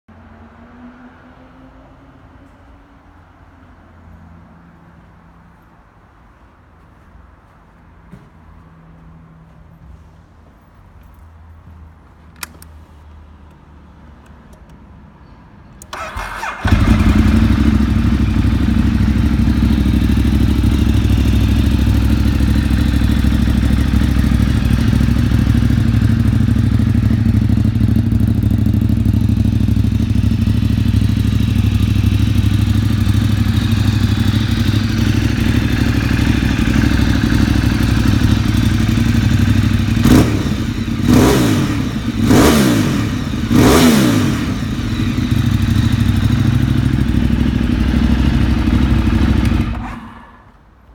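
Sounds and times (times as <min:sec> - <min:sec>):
motorcycle starter cranking: 0:15.8 - 0:18.2
motorcycle engine idling: 0:15.9 - 0:50.1.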